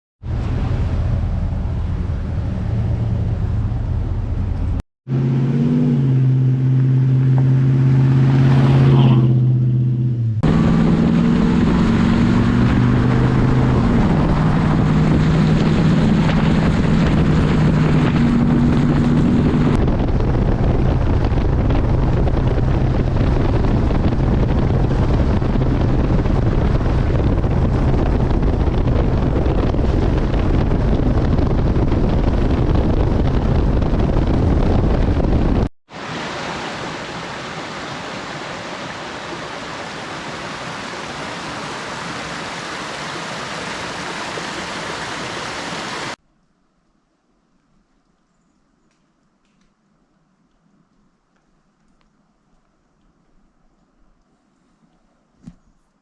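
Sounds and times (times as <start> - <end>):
truck engine drone: 0.2 - 35.7
road rumble: 0.2 - 46.3
wind noise on microphone: 10.3 - 38.4.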